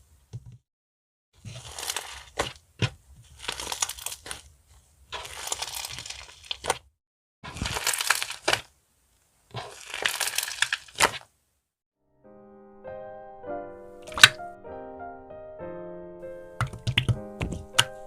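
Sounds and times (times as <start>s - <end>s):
slime squeezed by hand: 7.4s - 8.7s, 9.5s - 11.3s.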